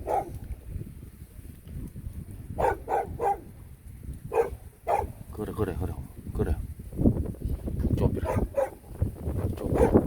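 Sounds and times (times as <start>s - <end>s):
dog barking: 0.0s - 0.4s, 2.6s - 3.5s, 4.3s - 5.2s, 8.2s - 8.9s, 9.7s - 10.0s.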